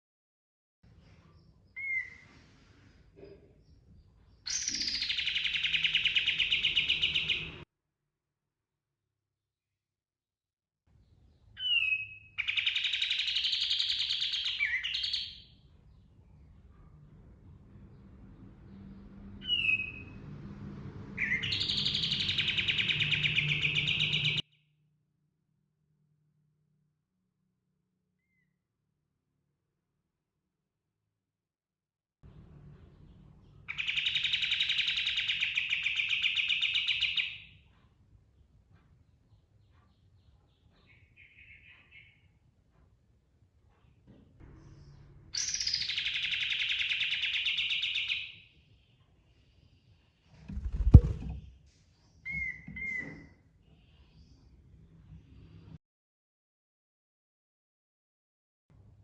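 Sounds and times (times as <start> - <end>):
songbird whistling and trilling: 1.8 - 2.2, 4.5 - 7.5, 11.6 - 15.4, 21.2 - 24.4, 45.4 - 48.3, 52.3 - 53.2.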